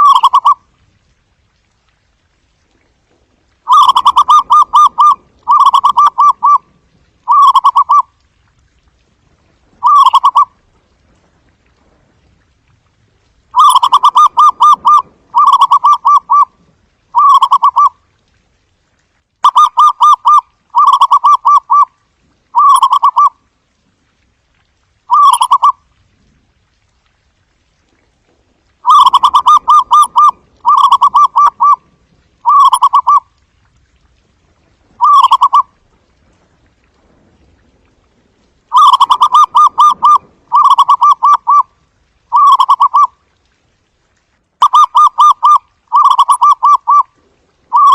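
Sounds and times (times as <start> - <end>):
dove cooing: 3.7 - 6.6, 7.3 - 8.1, 9.8 - 10.5, 13.6 - 16.5, 17.2 - 17.9, 28.8 - 31.8, 32.4 - 33.2, 35.0 - 35.7, 38.7 - 41.7, 42.3 - 43.1, 44.6 - 47.1.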